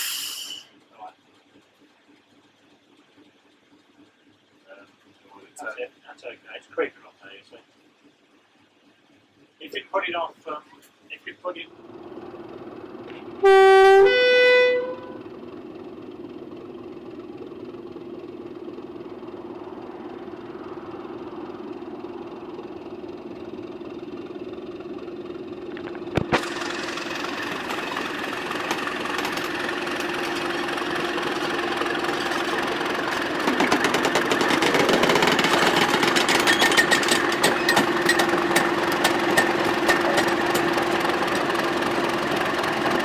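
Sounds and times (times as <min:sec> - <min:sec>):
diesel locomotive engine running: 0:00.0 - 0:43.0
dense rattle: 0:15.1 - 0:43.0.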